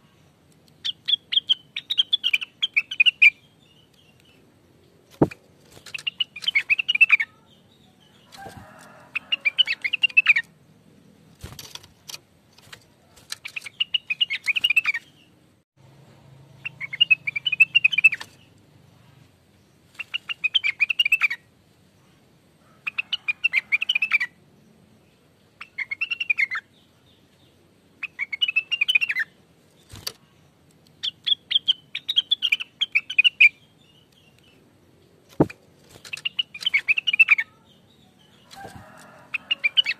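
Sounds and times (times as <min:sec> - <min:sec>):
bird warbling chirps: 0:16.6 - 0:18.5, 0:36.0 - 0:39.9.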